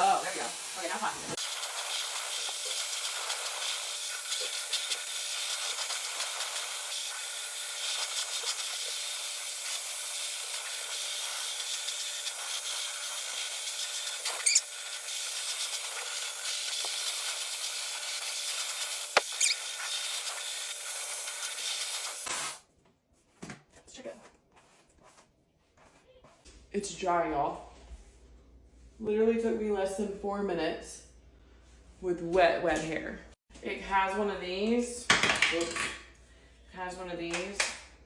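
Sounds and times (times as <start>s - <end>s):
hair dryer blowing air: 0.0s - 22.6s.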